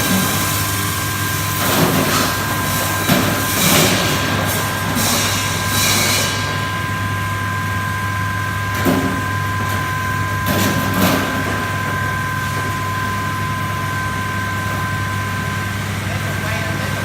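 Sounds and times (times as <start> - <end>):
ice-cutting machine motor humming: 0.0 - 17.0.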